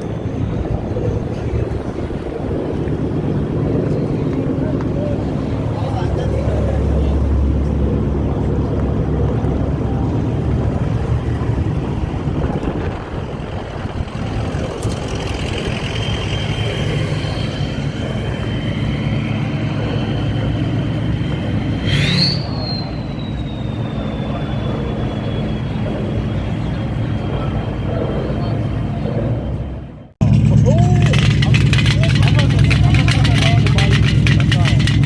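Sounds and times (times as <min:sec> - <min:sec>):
car engine revving: 0:05.2 - 0:22.8, 0:30.2 - 0:35.0.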